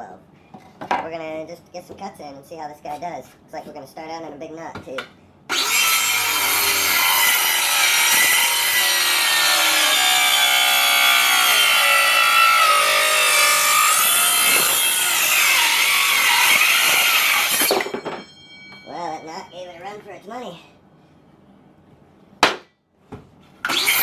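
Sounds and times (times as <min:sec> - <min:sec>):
circular saw cutting wood: 0:05.5 - 0:18.0, 0:23.7 - 0:24.0.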